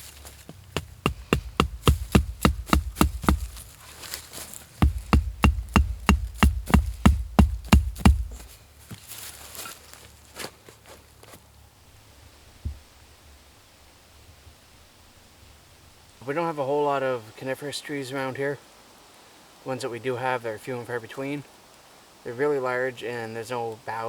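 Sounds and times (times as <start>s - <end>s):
tool striking wood: 0.8s - 3.7s, 4.8s - 8.5s.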